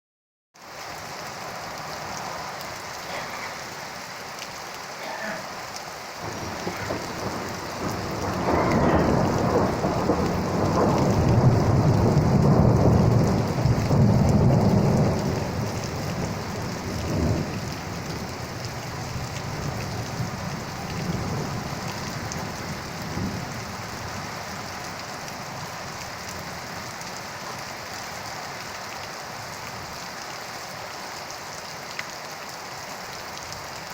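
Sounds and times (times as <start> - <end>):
steady rain falling: 0.6 - 33.9
rolling thunder: 6.2 - 24.2.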